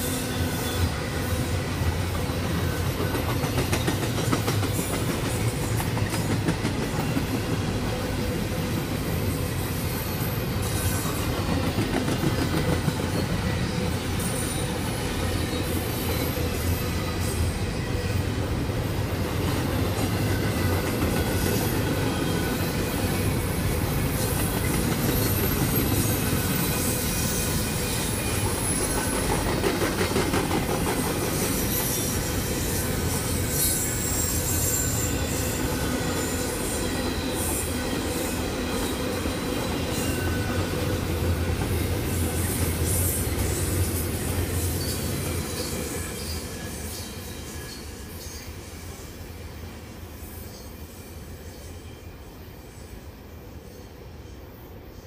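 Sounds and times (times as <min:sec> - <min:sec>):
freight train wheels rumbling: 0:00.0 - 0:50.6
high wheel squeals: 0:04.8 - 0:11.7, 0:20.0 - 0:30.0, 0:30.7 - 0:48.5.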